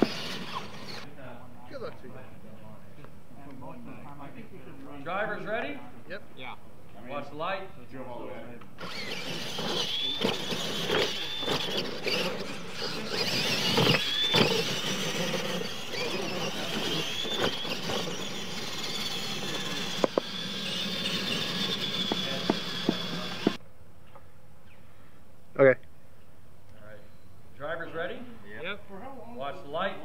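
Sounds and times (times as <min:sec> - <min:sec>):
electric motors and gears whining: 0:00.0 - 0:01.1, 0:08.8 - 0:23.6
tyres on dirt: 0:00.0 - 0:01.1, 0:08.6 - 0:23.6.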